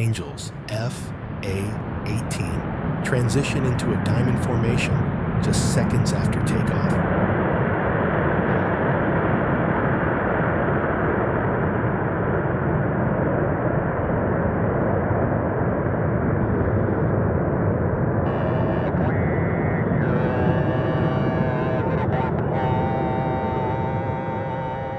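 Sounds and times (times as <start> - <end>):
jet engines roaring: 0.0 - 7.1.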